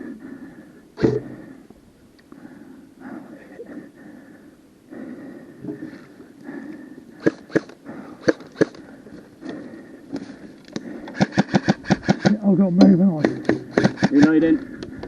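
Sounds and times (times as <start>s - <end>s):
airsoft gun shots: 7.2s - 8.8s, 11.2s - 12.5s, 13.2s - 14.4s.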